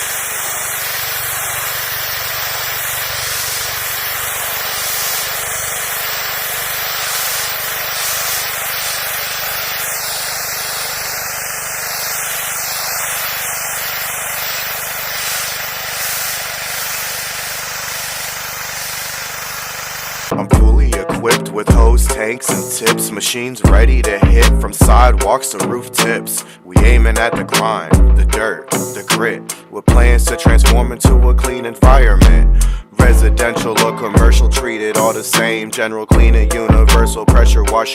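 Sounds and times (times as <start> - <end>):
pressure washer jet hissing on concrete: 0.0 - 20.3, 32.2 - 37.3
pressure washer engine hum: 0.0 - 21.0, 21.7 - 25.3.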